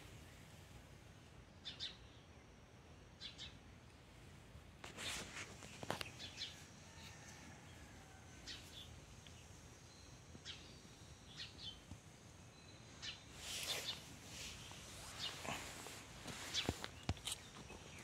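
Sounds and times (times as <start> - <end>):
rustle: 0.0 - 1.9, 3.3 - 18.0
bird chirps: 1.6 - 2.4, 8.4 - 15.6.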